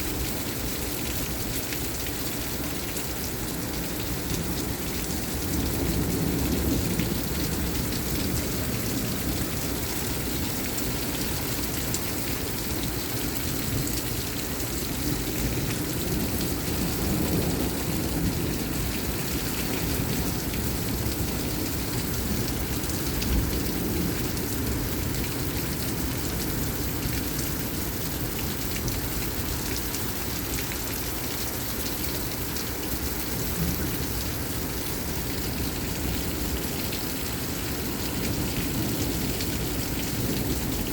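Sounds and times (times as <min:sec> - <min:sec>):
heavy rain falling: 0:00.0 - 0:40.9
low rumbling thunder: 0:05.2 - 0:10.2, 0:15.0 - 0:29.0, 0:37.9 - 0:40.9.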